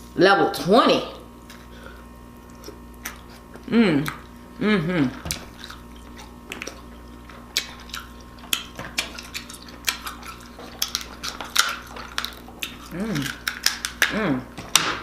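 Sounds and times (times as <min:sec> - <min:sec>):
crab shell cracking: 0:05.5 - 0:14.2.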